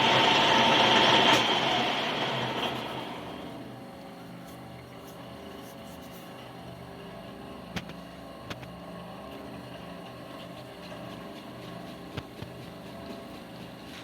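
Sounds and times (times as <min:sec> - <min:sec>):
motor humming: 0:00.0 - 0:06.7.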